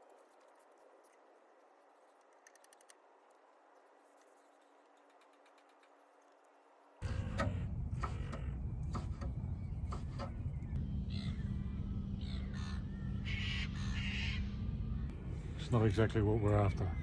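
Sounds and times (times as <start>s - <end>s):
sharp knocks: 7.0s - 10.4s
bird harsh calls: 7.0s - 15.1s
low rumble: 7.0s - 17.0s.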